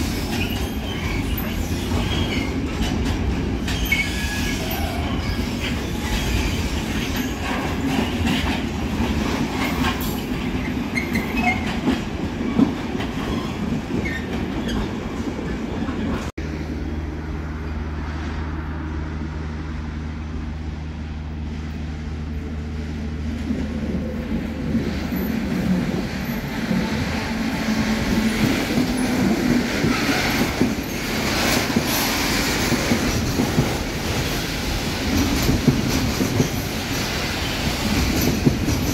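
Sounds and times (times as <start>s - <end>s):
freight wagons clattering on track: 0.0s - 14.9s, 24.8s - 38.9s
diesel locomotive engine humming: 16.0s - 38.8s.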